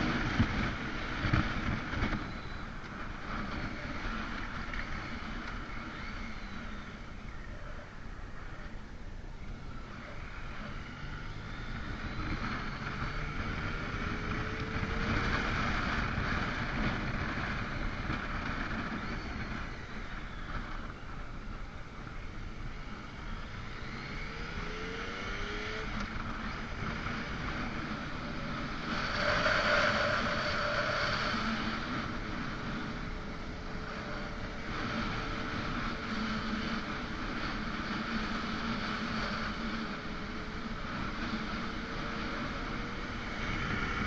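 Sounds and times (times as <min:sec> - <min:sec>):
wind and road noise: 0:00.0 - 0:44.0
motorcycle engine revving: 0:09.5 - 0:44.0.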